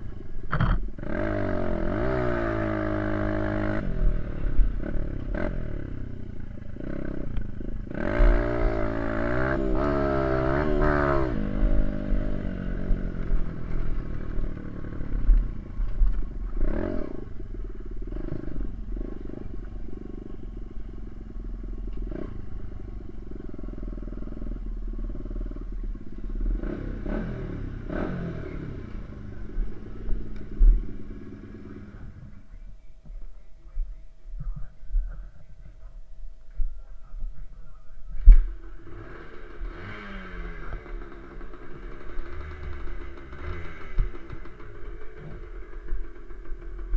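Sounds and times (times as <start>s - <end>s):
dirt bike engine revving: 0.0s - 35.3s, 38.2s - 46.9s
wind rumble on microphone: 31.9s - 38.7s.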